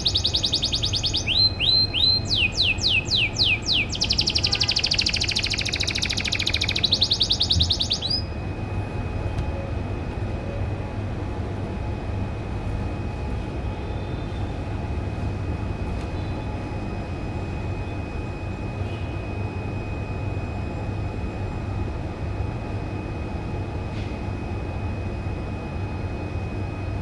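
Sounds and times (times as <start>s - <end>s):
low rumbling hum: 1.2s - 21.6s.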